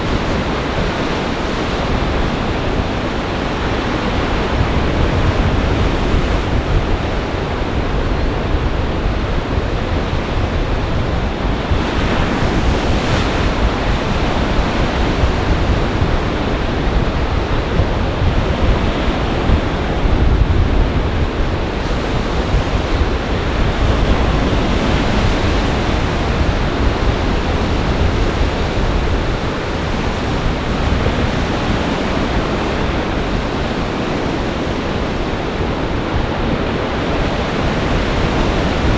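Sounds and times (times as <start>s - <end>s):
waves breaking: 0.0s - 38.9s
wind rumbling against microphone: 0.0s - 38.9s.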